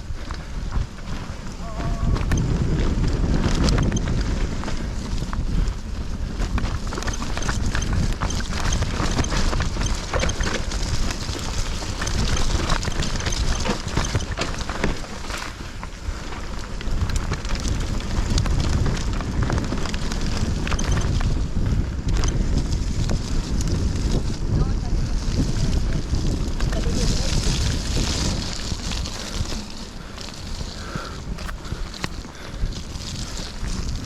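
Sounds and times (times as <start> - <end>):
bike tyres clicking and rattling: 0.0 - 34.0
wind buffeting microphone: 0.0 - 34.0.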